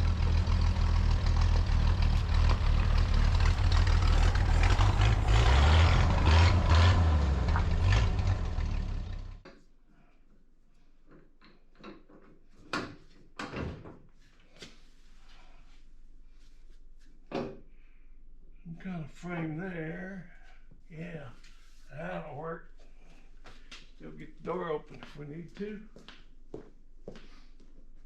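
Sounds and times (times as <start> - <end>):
car engine rumbling: 0.0 - 9.4.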